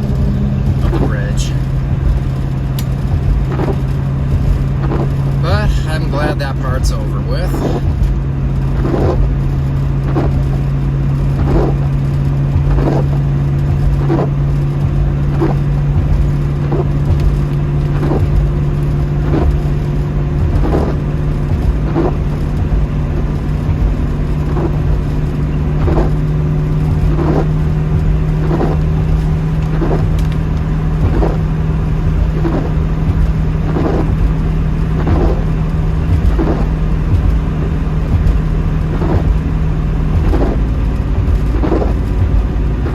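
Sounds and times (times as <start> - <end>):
car engine and road drone: 0.0 - 42.9
soft regular stroke: 10.1 - 42.9.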